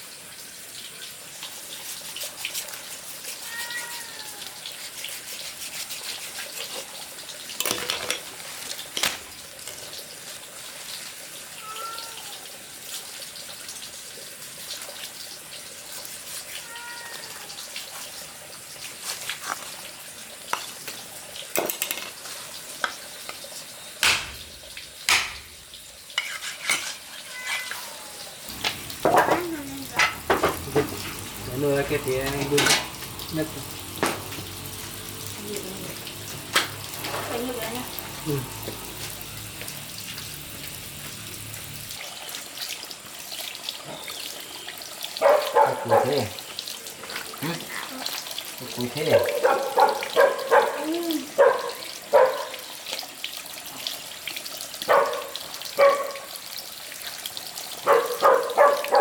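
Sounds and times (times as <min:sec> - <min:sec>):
frying sizzle: 0:00.0 - 0:59.0
faint animal calls: 0:03.4 - 0:04.5
utensils knocking pots and dishes: 0:25.1 - 0:25.6, 0:28.5 - 0:35.3.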